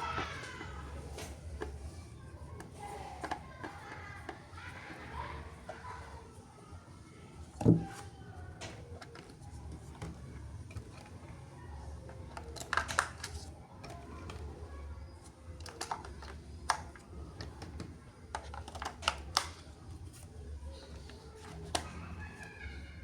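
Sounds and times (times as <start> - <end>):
plastic packaging clicks and taps: 12.1 - 14.4, 15.6 - 19.7.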